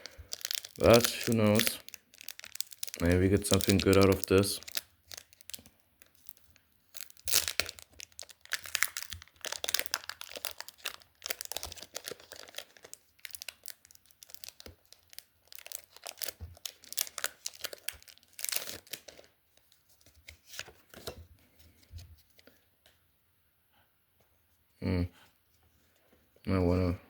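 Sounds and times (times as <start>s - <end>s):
foil wrapper tearing and crinkling: 0.0s - 19.3s.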